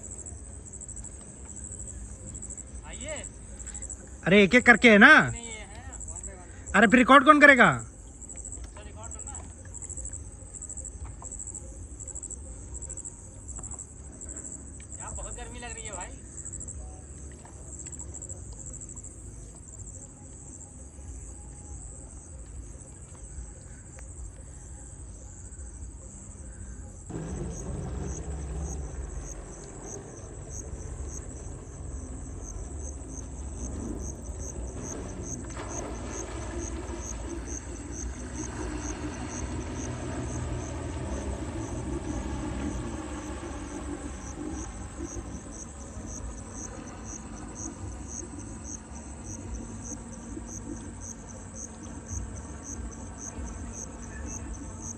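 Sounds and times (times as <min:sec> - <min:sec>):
high-pitched insect chorus: 0:00.0 - 0:54.9
low rumble: 0:27.0 - 0:54.9.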